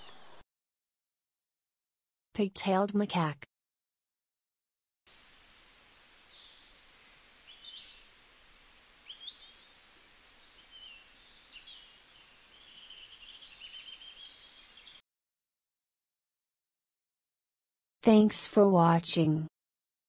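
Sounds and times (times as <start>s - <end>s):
birds chirping: 5.1s - 15.0s
faint outdoor hiss: 5.1s - 15.0s.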